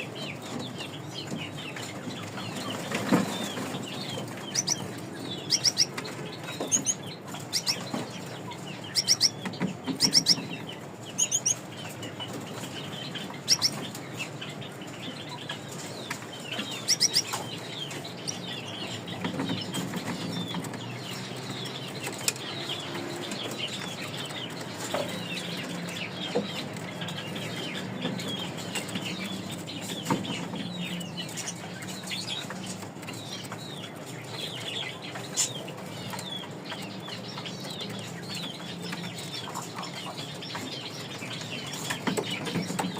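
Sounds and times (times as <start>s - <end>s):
finches chirping: 0.0s - 42.9s.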